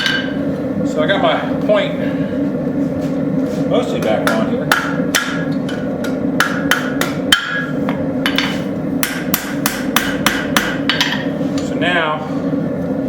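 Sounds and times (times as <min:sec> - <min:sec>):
hammer striking metal on anvil: 0:00.0 - 0:00.4, 0:04.0 - 0:11.3.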